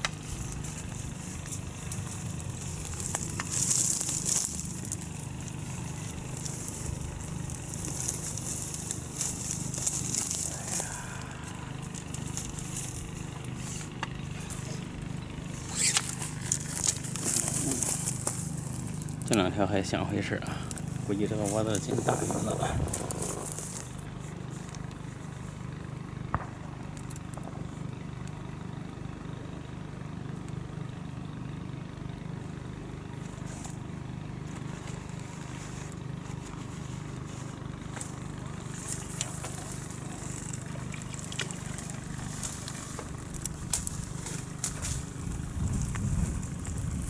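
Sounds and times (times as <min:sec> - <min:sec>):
light clicks and rustles: 0:00.0 - 0:19.5, 0:34.4 - 0:47.0
water pumps humming: 0:00.0 - 0:47.0.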